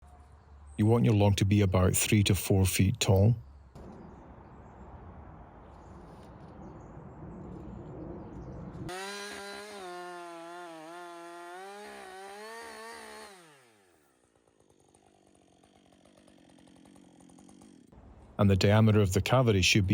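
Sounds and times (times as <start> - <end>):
chainsaw cutting: 8.9 - 18.0
chainsaw engine running fast: 8.9 - 18.0.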